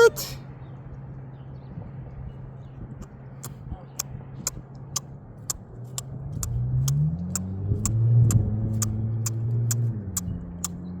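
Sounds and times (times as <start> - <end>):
sharp high clicks: 5.5 - 10.8
vehicle engine revving: 5.5 - 11.0.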